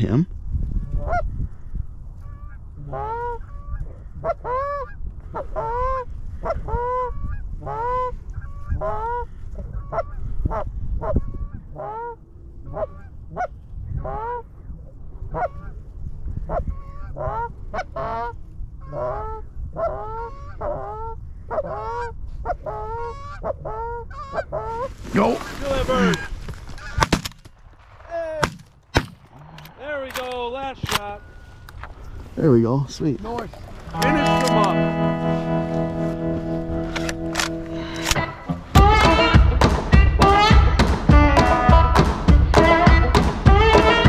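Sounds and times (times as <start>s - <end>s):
geese honking: 33.9s - 44.0s.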